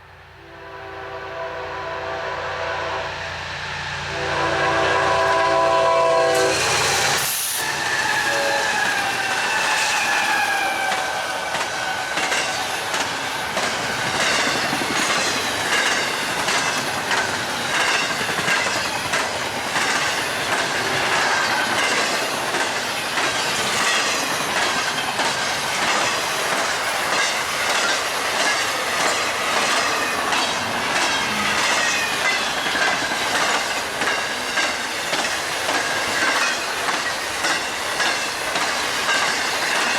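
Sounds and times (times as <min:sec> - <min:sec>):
train horn: 0:00.4 - 0:03.4, 0:04.0 - 0:09.2
train wheels rushing on rails: 0:01.4 - 0:39.9
wheels clicking over rail joints: 0:08.8 - 0:39.9.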